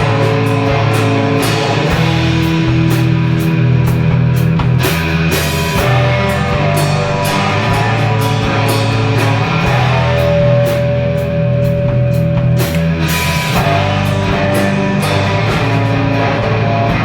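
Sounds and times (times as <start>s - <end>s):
bass guitar: 0.0s - 17.0s
drum kit beat: 0.0s - 17.0s
electric guitar chords: 0.0s - 17.0s.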